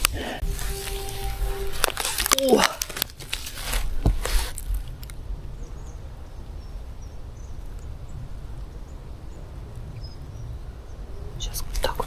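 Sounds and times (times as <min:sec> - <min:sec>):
dry leaves rustling under feet: 0:00.4 - 0:04.8.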